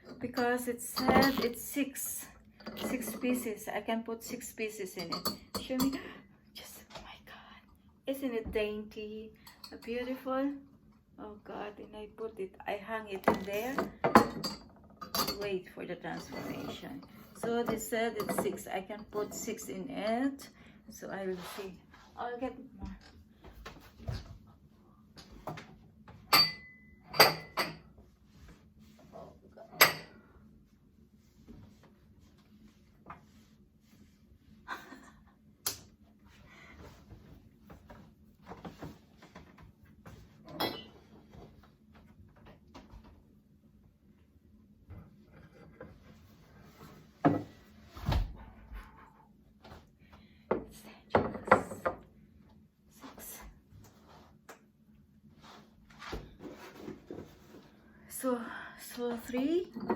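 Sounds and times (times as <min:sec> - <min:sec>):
wine glasses clinking: 0:01.0 - 0:01.5, 0:26.3 - 0:27.8.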